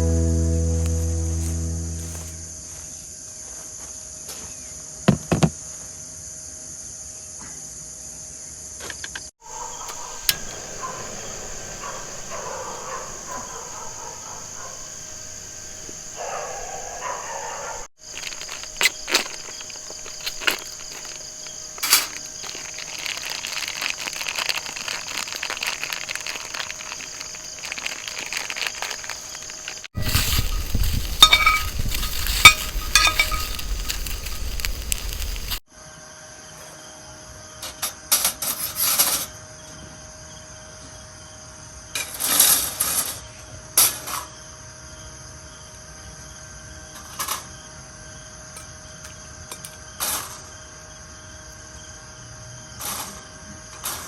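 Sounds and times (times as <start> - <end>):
insects chirping: 9.4 - 37.6
rustling noise: 18.0 - 35.6.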